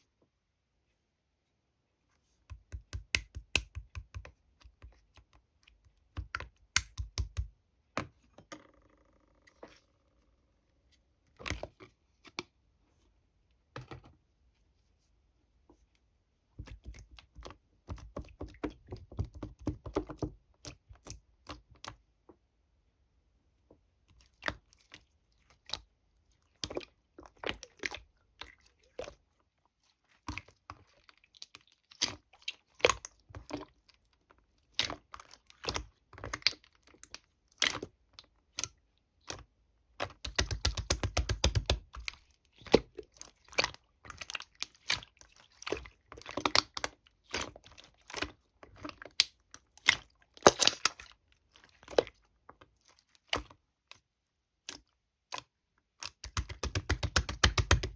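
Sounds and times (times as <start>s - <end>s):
sticky slime popping and clicking: 2.5s - 5.3s, 6.1s - 7.5s, 40.0s - 42.8s, 56.0s - 57.9s.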